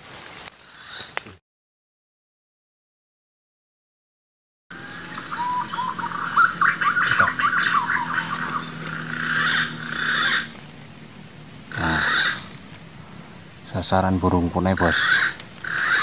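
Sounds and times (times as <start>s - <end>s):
birds chirping and whistling: 4.7s - 13.8s, 14.6s - 16.0s.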